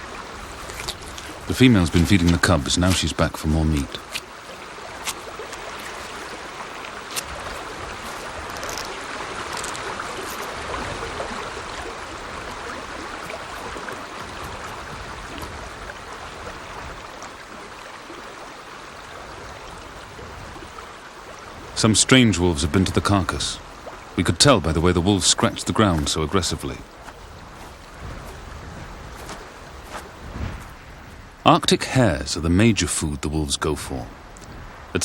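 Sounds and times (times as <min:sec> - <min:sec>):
rushing outdoor noise: 0:00.0 - 0:35.0
faint clicks: 0:08.4 - 0:10.5, 0:34.3 - 0:34.6.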